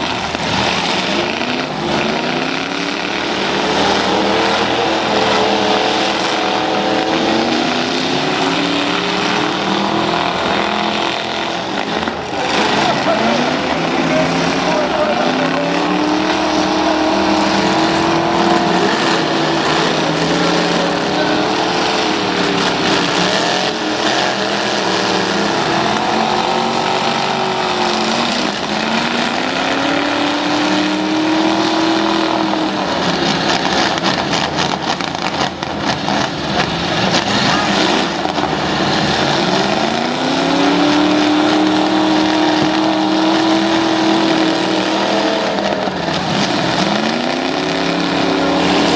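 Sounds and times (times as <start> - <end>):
truck engines revving: 0.0 - 48.9.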